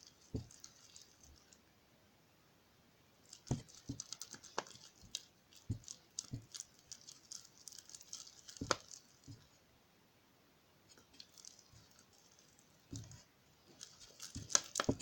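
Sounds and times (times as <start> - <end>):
spoon stirring sticky slime: 0.0 - 1.6, 3.3 - 9.5, 10.9 - 15.0.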